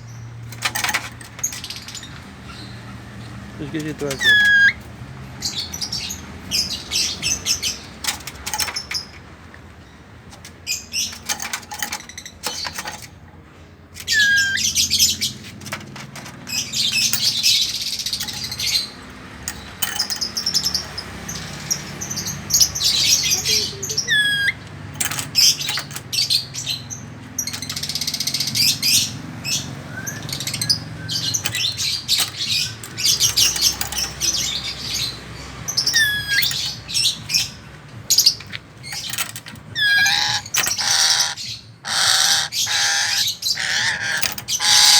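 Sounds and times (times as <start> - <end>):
parrots chattering: 1.6 - 4.8, 14.0 - 15.4, 22.5 - 44.9.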